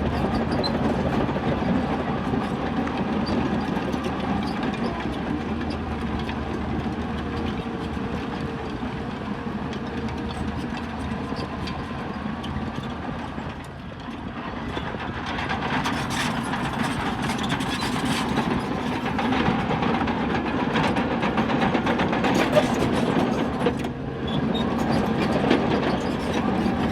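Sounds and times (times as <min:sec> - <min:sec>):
bulldozer diesel engine running: 0:00.0 - 0:26.9.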